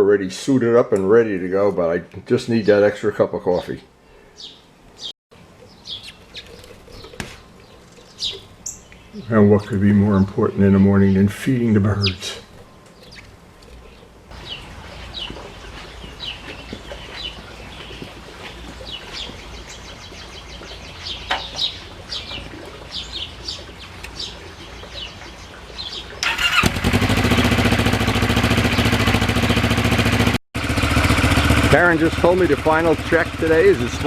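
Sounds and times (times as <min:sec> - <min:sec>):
small birds chirping: 0:03.6 - 0:26.6
motorcycle engine running: 0:26.2 - 0:34.0.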